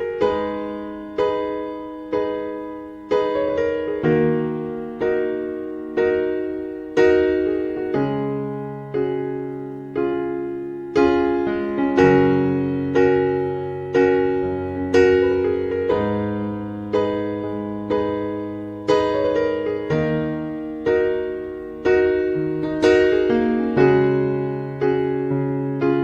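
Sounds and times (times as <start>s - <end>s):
electric piano playing slow chords: 0.0s - 26.0s.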